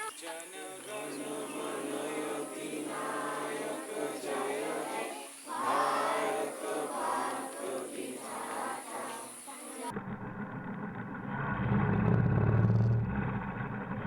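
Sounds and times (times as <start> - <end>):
voices singing together: 0.0 - 10.0.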